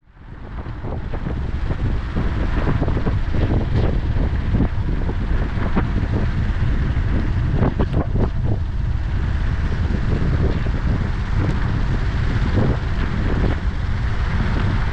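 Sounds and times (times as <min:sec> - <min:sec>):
low rumble: 0:00.0 - 0:14.9
wind buffeting microphone: 0:00.0 - 0:14.9.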